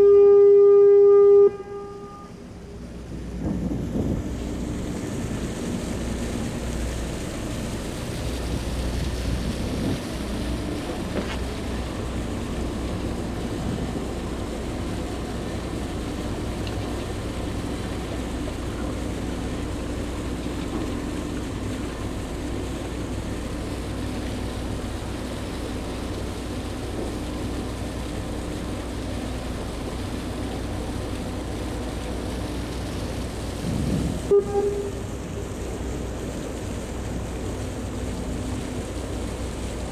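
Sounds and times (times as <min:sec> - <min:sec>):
ferry engines droning: 0:00.0 - 0:39.9
brief loud tone: 0:34.3 - 0:35.1.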